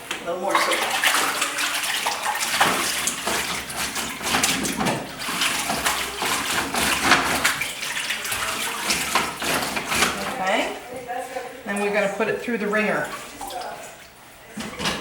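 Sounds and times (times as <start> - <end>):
water sloshing: 0.0 - 15.0
laundry scrubbed on washboard: 0.4 - 10.7.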